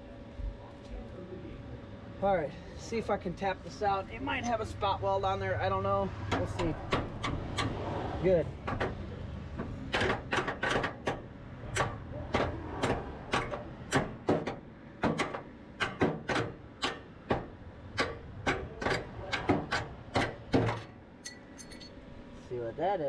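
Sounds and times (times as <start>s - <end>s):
hammer knocking on sheet metal: 9.6s - 20.9s.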